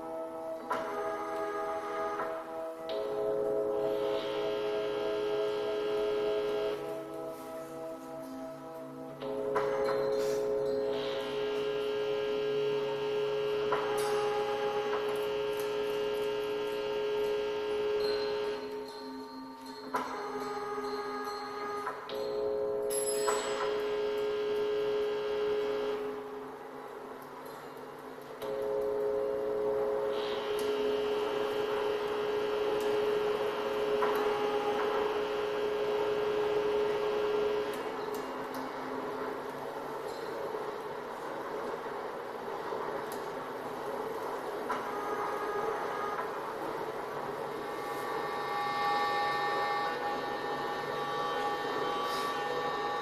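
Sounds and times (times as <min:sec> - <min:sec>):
electronic drone: 0:00.0 - 0:26.8, 0:28.4 - 0:41.6, 0:42.4 - 0:53.0
cluster of higher electronic tones: 0:09.2 - 0:26.2.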